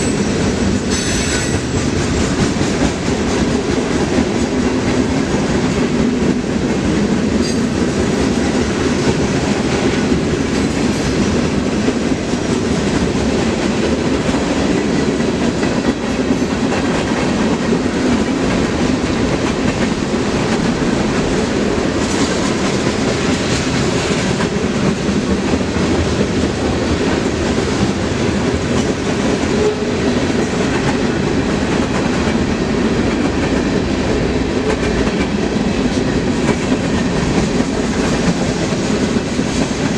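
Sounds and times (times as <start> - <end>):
freight train cars rumbling: 0.0 - 39.9.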